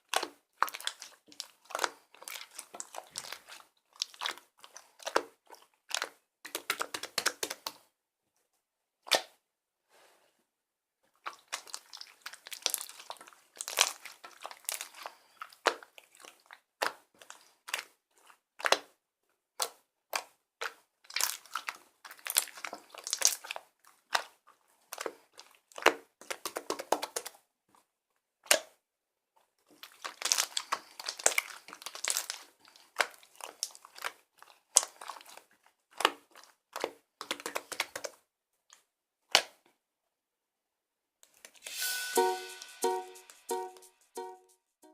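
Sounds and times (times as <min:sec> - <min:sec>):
slime squished by hand: 0:00.0 - 0:07.9, 0:11.2 - 0:19.0, 0:19.6 - 0:27.4, 0:29.7 - 0:38.2.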